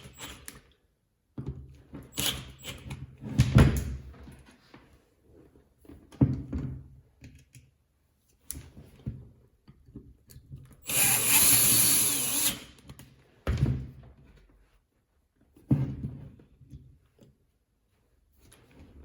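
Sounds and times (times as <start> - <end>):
die grinder whining: 10.8 - 12.6.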